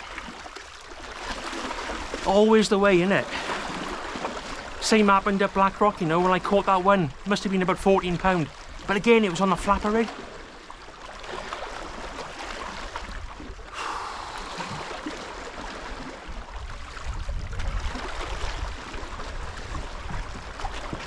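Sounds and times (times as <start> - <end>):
sea washing on shore: 0.0 - 21.0
wind noise: 16.6 - 21.0.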